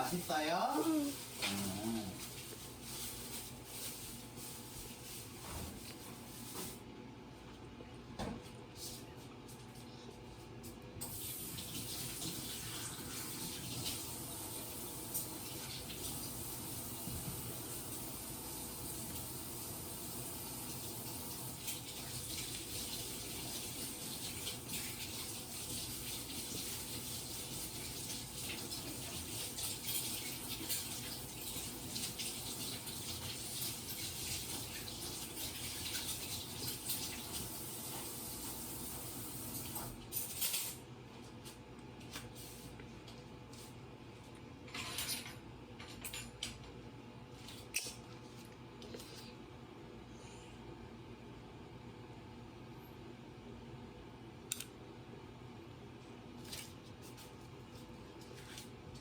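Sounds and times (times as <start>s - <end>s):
water running from a tap: 11.0s - 40.0s.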